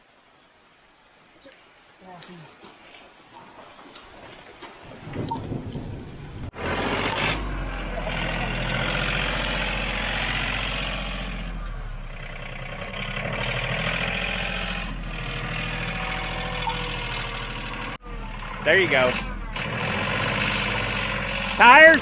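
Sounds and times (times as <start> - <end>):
tractor diesel engine under load: 4.9 - 22.0.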